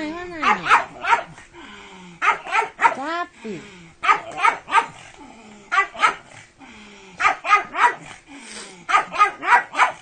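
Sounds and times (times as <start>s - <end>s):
dog barking: 0.4s - 1.4s, 2.2s - 3.1s, 4.0s - 5.0s, 5.7s - 6.3s, 7.2s - 8.1s, 8.9s - 10.0s.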